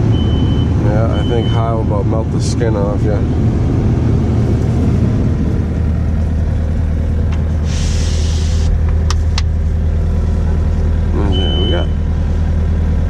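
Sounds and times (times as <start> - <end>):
diesel engine low hum: 0.0 - 13.0
brief hiss: 7.6 - 8.7.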